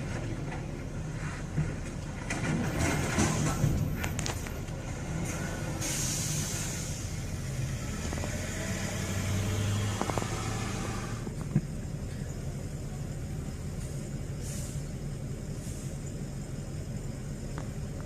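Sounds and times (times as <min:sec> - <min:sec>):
vehicle engine and road noise: 0:00.0 - 0:18.0
hiss: 0:05.2 - 0:07.4, 0:13.8 - 0:16.2.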